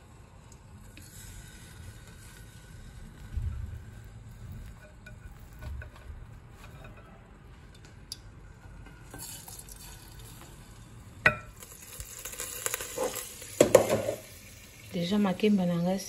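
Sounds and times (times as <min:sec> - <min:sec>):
plantain frying in oil: 0:00.0 - 0:06.6, 0:09.1 - 0:16.0.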